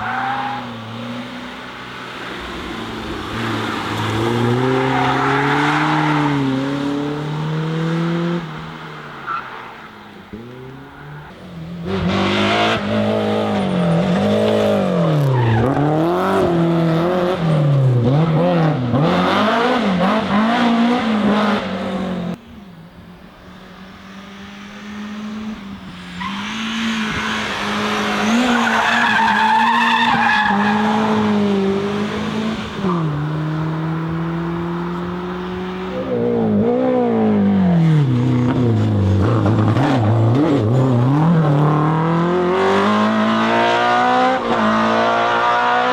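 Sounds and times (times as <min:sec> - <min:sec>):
engine revving through gear changes: 0:30.6 - 0:45.9.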